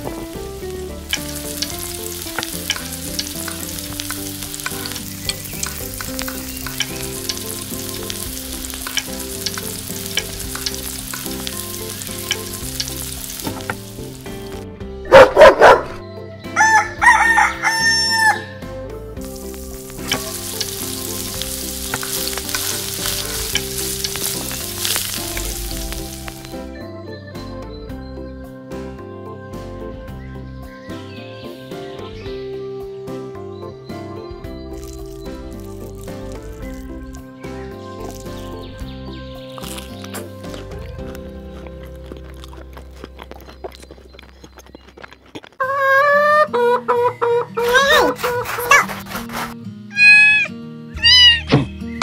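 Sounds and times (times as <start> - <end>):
food sizzling in oil: 0.0 - 14.6, 19.2 - 26.7, 34.7 - 38.8
background music: 0.0 - 52.0
rooster crowing: 16.6 - 18.6.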